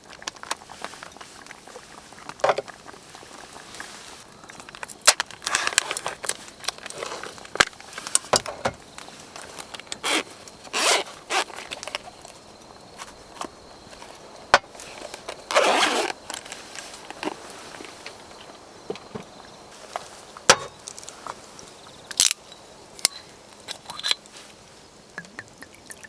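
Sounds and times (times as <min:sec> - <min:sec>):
rustling: 0:00.0 - 0:22.4
zipper rasping: 0:10.0 - 0:11.9, 0:15.5 - 0:16.6.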